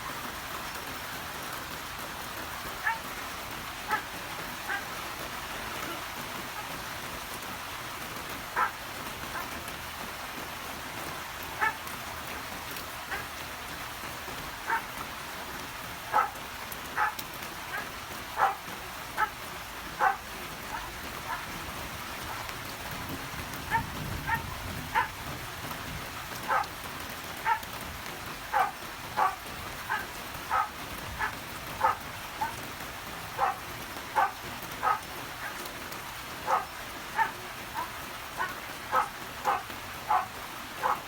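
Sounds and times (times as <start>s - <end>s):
steady rain falling: 0.0s - 41.0s
dog barking: 2.8s - 3.1s, 3.9s - 4.9s, 8.6s - 9.6s, 11.6s - 11.8s, 13.1s - 13.4s, 14.6s - 14.9s, 16.1s - 16.4s, 17.0s - 19.4s, 20.0s - 21.6s, 23.6s - 25.2s, 26.4s - 26.8s, 27.4s - 27.7s, 28.5s - 32.6s, 33.3s - 35.6s, 36.4s - 41.0s.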